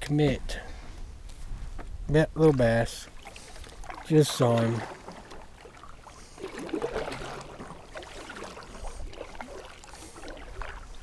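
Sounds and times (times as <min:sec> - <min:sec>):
water lapping and trickling: 0:00.6 - 0:11.0.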